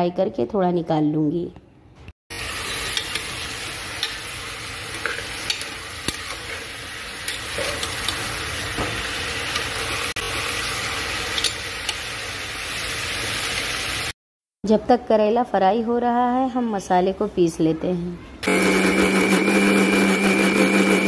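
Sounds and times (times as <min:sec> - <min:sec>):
vegetables sizzling in oil: 0:02.3 - 0:14.2
ladle scraping and tapping pot: 0:07.3 - 0:08.2.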